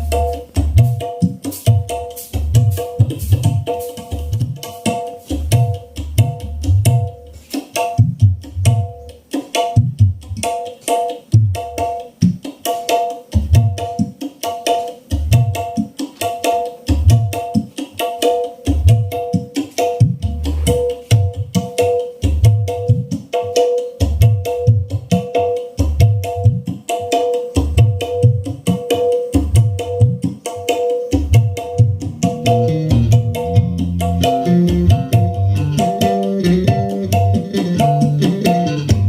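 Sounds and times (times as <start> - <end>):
hand-drum percussion music: 0.0 - 39.0
deep drum hits: 20.2 - 21.3.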